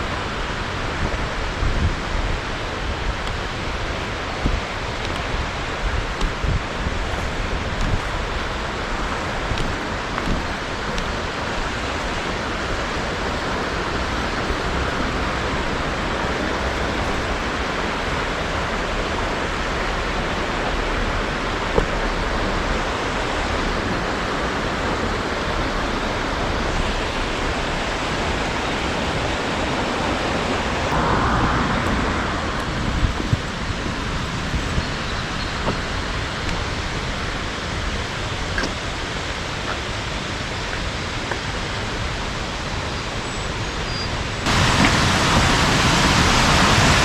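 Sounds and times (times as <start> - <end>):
rushing mountain stream: 0.0 - 47.0.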